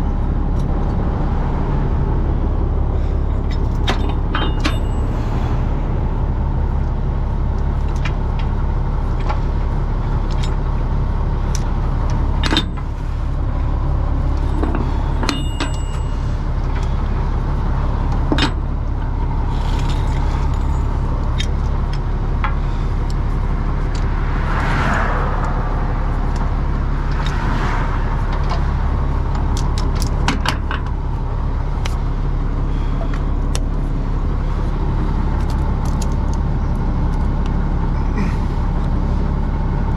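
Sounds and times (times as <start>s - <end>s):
heavy engine running: 0.0s - 39.9s.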